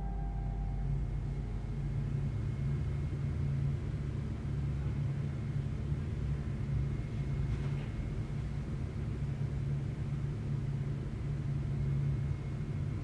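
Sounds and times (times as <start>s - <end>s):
faint thin high tone: 0.0s - 1.8s
steady low rumble: 0.0s - 7.2s.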